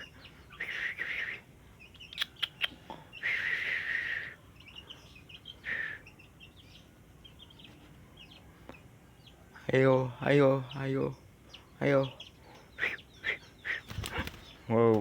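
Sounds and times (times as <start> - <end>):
bird scratchy call: 0.0 - 1.4, 12.8 - 14.6
bird sharp clicks: 2.1 - 2.8.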